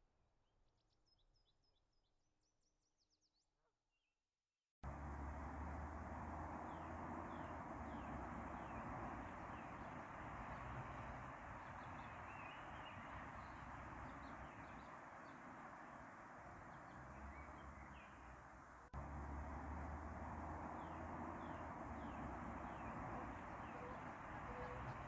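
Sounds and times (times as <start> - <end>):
small birds chirping: 6.2 - 18.6, 19.6 - 25.0.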